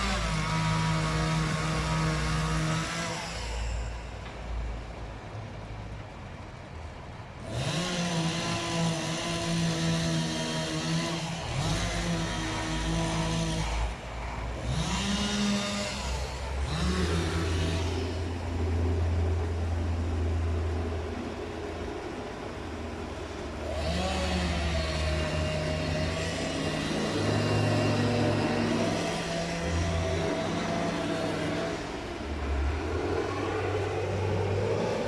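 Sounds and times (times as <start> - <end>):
engine revving: 0.0 - 4.0, 7.4 - 22.2, 23.2 - 35.0
low drone: 8.2 - 35.0.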